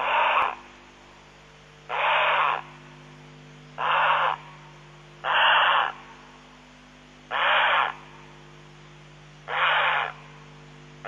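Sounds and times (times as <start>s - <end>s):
bird rasping screech: 0.0s - 0.6s, 1.9s - 2.6s, 3.8s - 4.4s, 5.2s - 6.0s, 7.3s - 8.0s, 9.5s - 10.2s.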